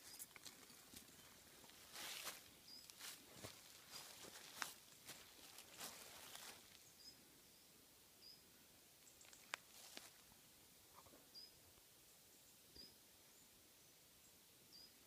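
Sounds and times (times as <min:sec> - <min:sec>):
footsteps rustling dry leaves: 0:00.0 - 0:06.9, 0:09.5 - 0:10.2
faint bird chirps: 0:02.6 - 0:03.2, 0:06.8 - 0:09.6, 0:10.9 - 0:15.0.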